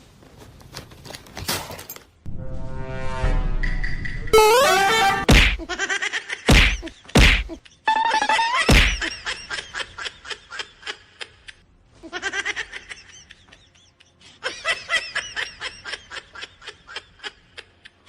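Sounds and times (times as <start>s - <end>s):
person laughing: 5.6s - 18.0s.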